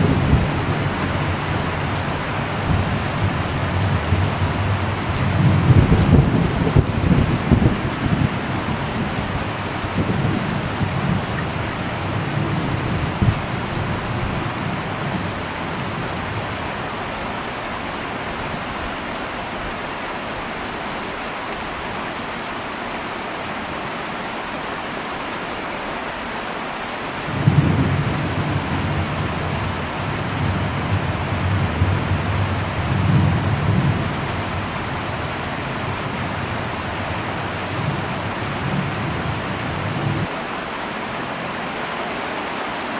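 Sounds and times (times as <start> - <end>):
thunder rumbling: 0.0 - 17.1, 27.3 - 40.3
heavy rain on metal roof: 0.0 - 42.9.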